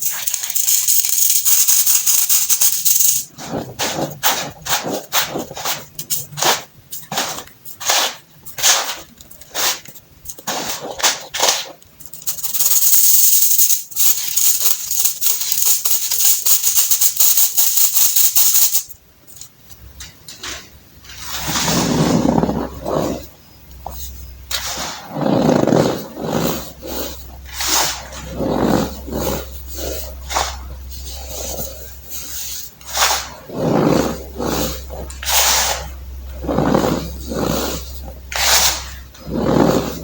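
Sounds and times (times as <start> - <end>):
baking soda crumbling: 0.0 - 3.3.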